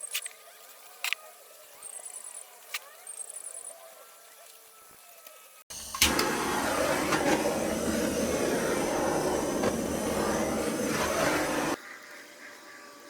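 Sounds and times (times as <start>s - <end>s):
lathe tool cutting spinning wood: 5.7s - 11.8s.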